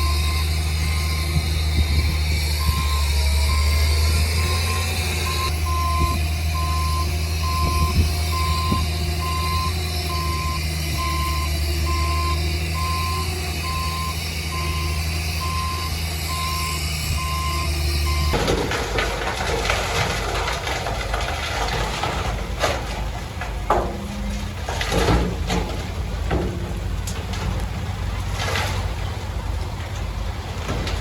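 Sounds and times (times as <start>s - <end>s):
reversing alarm beeping: 0.0s - 18.6s
diesel engine drone: 0.0s - 31.0s.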